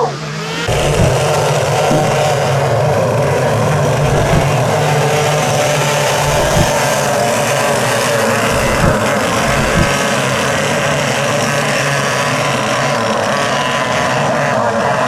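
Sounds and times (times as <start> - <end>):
brief low thumps: 0.7 - 1.3, 1.9 - 2.3, 4.0 - 4.6, 6.2 - 6.8, 8.5 - 10.0
racing engines running: 8.5 - 10.0.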